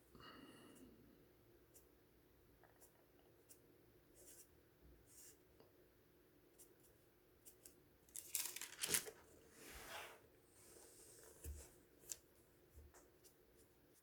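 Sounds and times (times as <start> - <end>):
rustling: 8.1 - 10.2.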